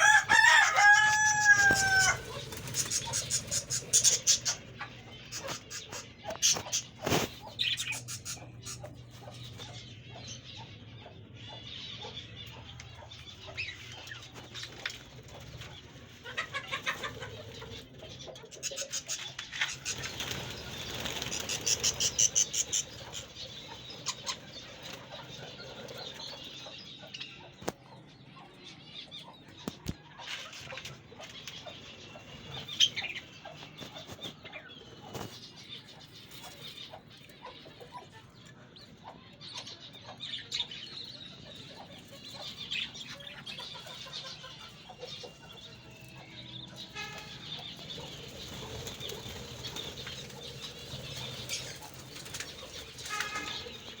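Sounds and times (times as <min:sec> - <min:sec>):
budgerigars chirping and chattering: 0:00.0 - 0:54.0
rapid wing flapping: 0:19.8 - 0:22.8, 0:47.9 - 0:53.9.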